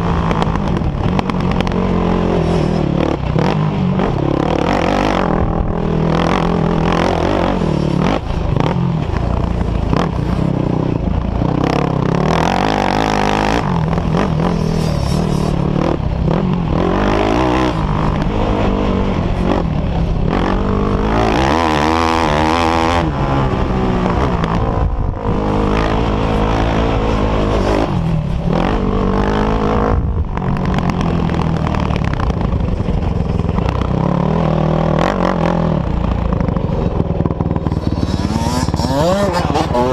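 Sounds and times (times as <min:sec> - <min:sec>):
off-road engines revving: 0:00.0 - 0:39.9.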